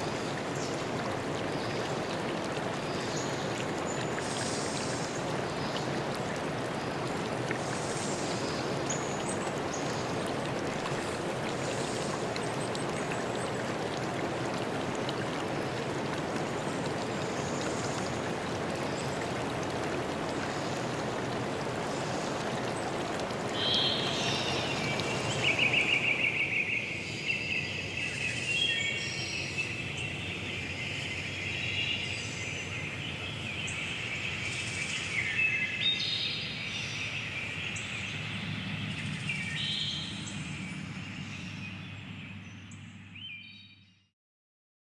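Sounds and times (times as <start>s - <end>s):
rushing water: 0.0s - 42.4s
songbirds singing: 0.0s - 44.0s.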